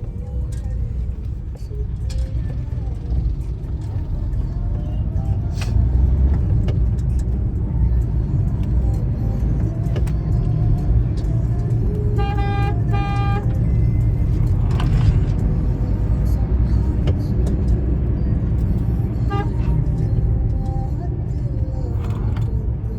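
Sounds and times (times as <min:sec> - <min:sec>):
car driving rumble: 0:00.0 - 0:22.9
car horn honks: 0:12.1 - 0:13.6, 0:19.3 - 0:19.8.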